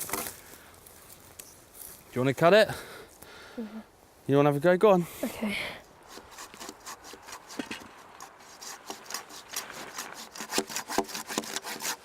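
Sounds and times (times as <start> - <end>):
hand saw cutting tree trunk: 6.0 - 12.0.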